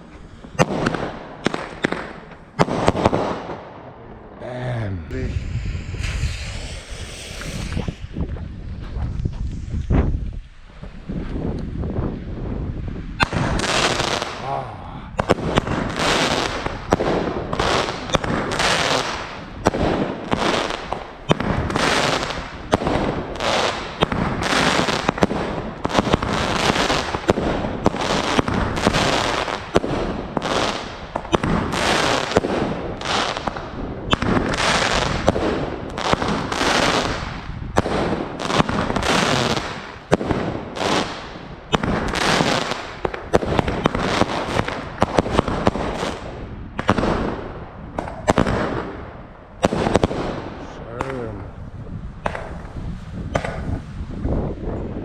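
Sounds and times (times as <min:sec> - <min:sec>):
fireworks bangs: 0:00.6 - 0:10.2, 0:13.2 - 0:49.0
fireworks crackling: 0:04.6 - 0:11.9, 0:13.1 - 0:47.4.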